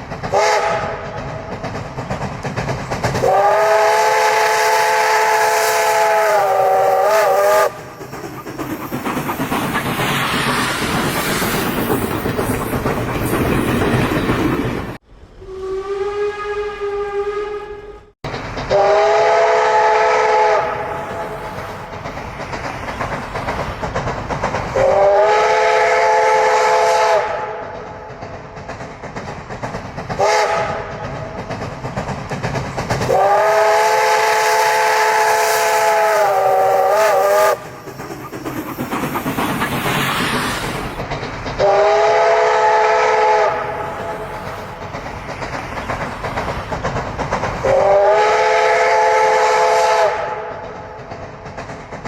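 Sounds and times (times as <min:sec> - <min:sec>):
train hissing and rumbling: 0:00.0 - 0:52.0
steam locomotive whistle: 0:00.3 - 0:01.2, 0:03.2 - 0:08.0, 0:15.4 - 0:18.1, 0:18.7 - 0:21.5, 0:24.8 - 0:27.8, 0:30.2 - 0:31.0, 0:33.1 - 0:37.8, 0:41.6 - 0:44.6, 0:47.6 - 0:50.6.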